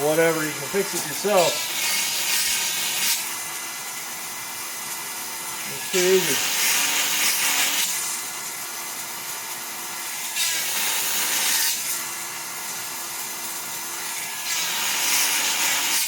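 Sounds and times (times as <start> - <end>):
grinder grinding chain tooth: 0.0 - 3.4, 4.8 - 8.6, 14.0 - 16.0
small electric motor running: 0.0 - 16.0.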